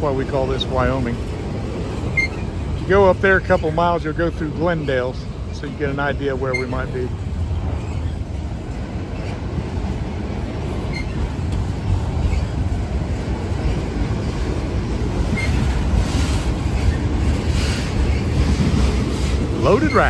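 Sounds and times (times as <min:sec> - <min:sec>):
train wheels rumbling and rattling: 0:00.0 - 0:20.0
faint wheel squeals: 0:02.1 - 0:02.5, 0:06.4 - 0:07.1, 0:10.9 - 0:11.3.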